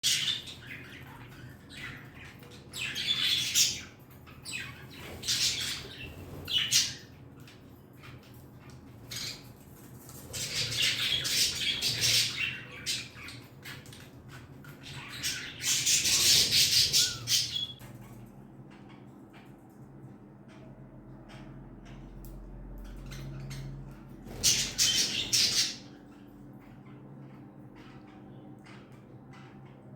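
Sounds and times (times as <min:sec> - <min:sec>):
budgerigars squawking and chattering: 0:00.0 - 0:07.1, 0:10.3 - 0:17.8, 0:22.9 - 0:29.9.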